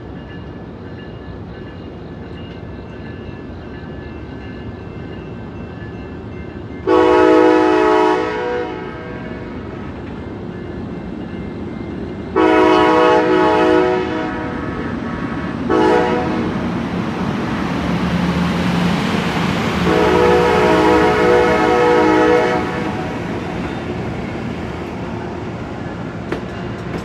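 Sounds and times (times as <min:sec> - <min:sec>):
train rumble: 0:00.0 - 0:27.0
locomotive air horn blasts: 0:06.9 - 0:09.5, 0:12.4 - 0:14.7, 0:15.7 - 0:16.5, 0:19.8 - 0:23.1.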